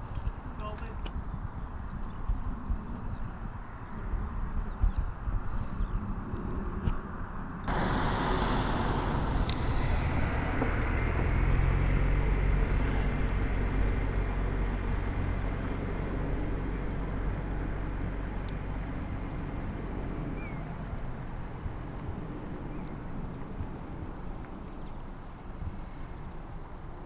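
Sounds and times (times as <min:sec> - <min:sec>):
broad engine roar: 0:07.7 - 0:18.8.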